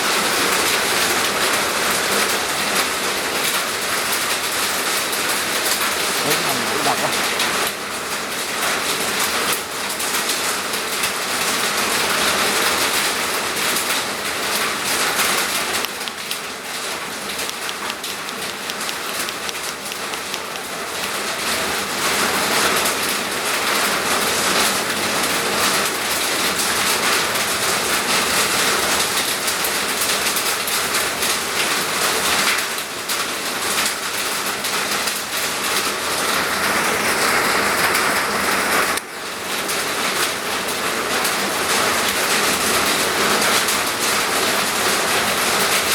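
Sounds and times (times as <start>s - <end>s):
heavy rain falling: 0.0s - 18.5s, 19.1s - 45.9s.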